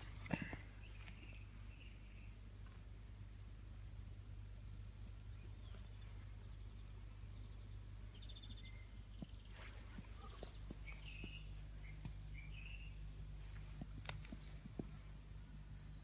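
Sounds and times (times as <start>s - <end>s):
steady low hum: 0.0s - 1.2s
faint birds chirping: 0.0s - 3.2s, 4.6s - 16.0s.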